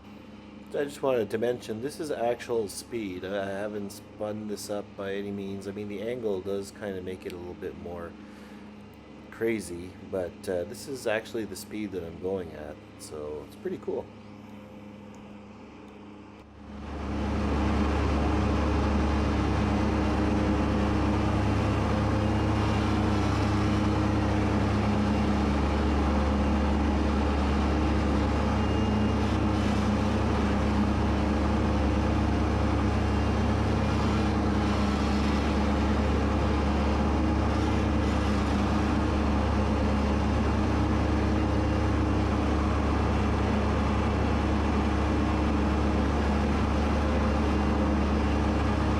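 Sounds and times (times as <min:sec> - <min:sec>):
tractor engine running: 0:00.0 - 0:15.1, 0:16.4 - 0:48.9
mower cutting grass: 0:16.7 - 0:48.9.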